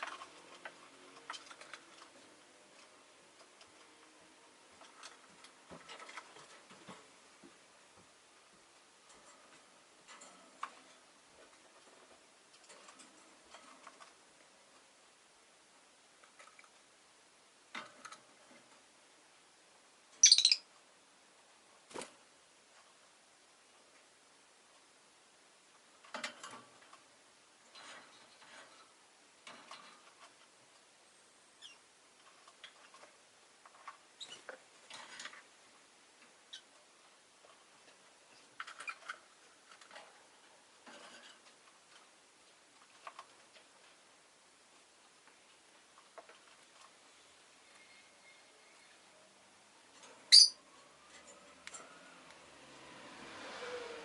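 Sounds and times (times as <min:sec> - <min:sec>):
lovebird chirping: 0:20.2 - 0:20.7, 0:31.5 - 0:31.9, 0:50.3 - 0:50.6.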